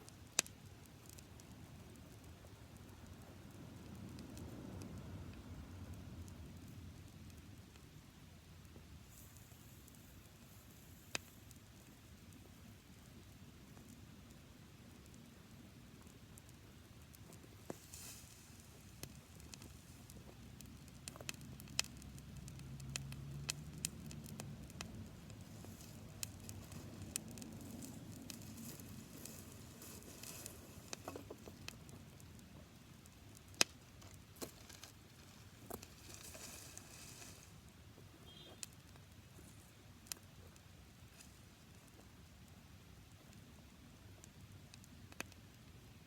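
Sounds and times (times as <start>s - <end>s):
campfire crackling and popping: 0.0s - 46.0s
low rumble of flame: 0.0s - 46.0s
fire hissing: 8.8s - 13.0s, 15.9s - 38.0s.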